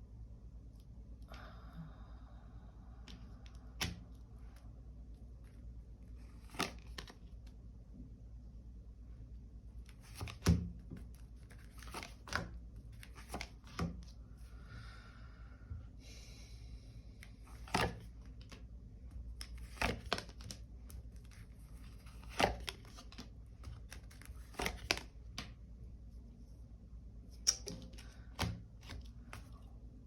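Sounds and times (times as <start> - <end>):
cards tapping and slapping: 3.8 - 4.2, 6.4 - 7.2, 10.0 - 14.1, 17.6 - 25.6, 27.4 - 29.6.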